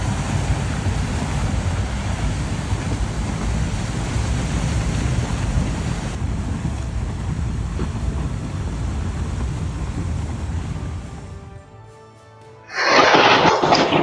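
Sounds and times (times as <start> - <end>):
mud and debris flow rushing: 12.7 - 14.0.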